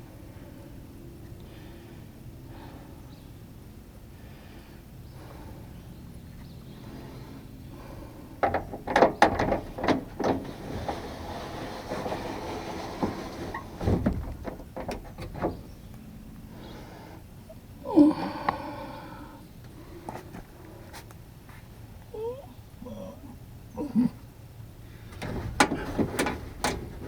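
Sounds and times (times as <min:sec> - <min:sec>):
tools clattering against metal: 0:25.2 - 0:27.0.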